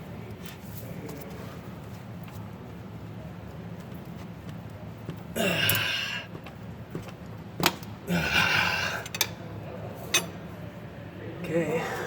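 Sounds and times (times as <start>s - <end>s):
steady low hum: 0.0s - 12.0s
person straining: 5.4s - 6.3s, 8.1s - 9.1s.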